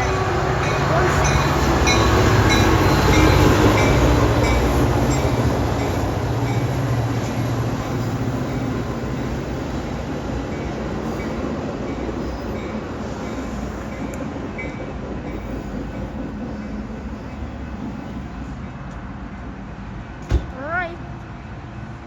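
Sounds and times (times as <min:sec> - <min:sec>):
train rumbling past on rails: 0:00.0 - 0:22.0.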